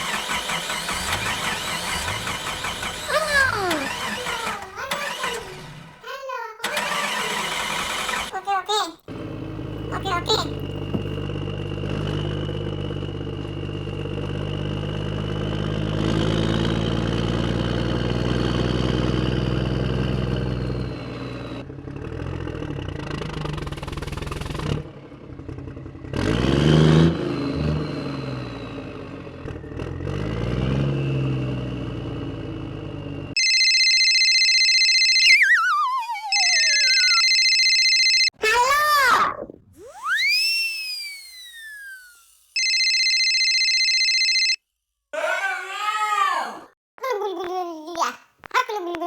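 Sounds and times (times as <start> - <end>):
tractor engine revving: 0.0 - 33.9, 35.4 - 43.3
synthetic steady tones: 33.6 - 38.3, 39.7 - 43.7
falling whistle: 35.2 - 37.7, 39.8 - 43.1.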